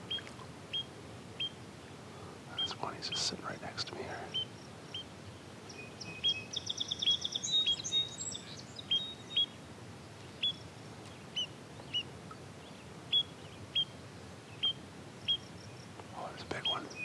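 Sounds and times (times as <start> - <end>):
bird trill: 0.0 - 1.6, 5.7 - 9.6, 10.3 - 10.7, 11.3 - 15.9
small birds chirping: 0.0 - 17.0.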